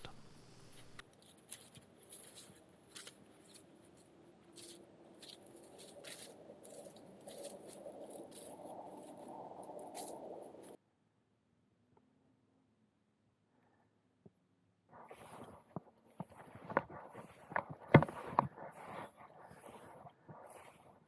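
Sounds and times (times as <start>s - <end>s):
faint footsteps crunching in snow: 0.0s - 10.8s, 15.0s - 21.0s.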